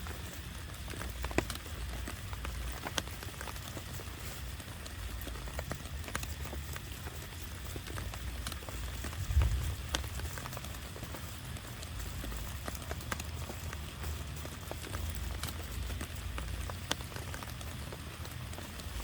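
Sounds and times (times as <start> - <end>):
heavy rain falling: 0.0 - 19.0
raindrops ticking on a surface: 0.0 - 19.0
steady low rumble: 8.4 - 11.0.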